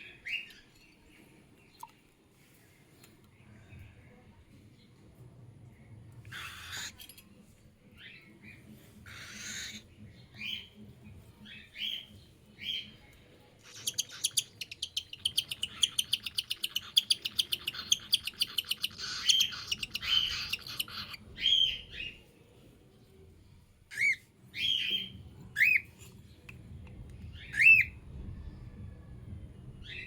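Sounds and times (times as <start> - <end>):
hissy bird calls: 6.3 - 7.1, 8.4 - 10.7, 13.6 - 22.2
bird chick chirping: 13.6 - 22.2.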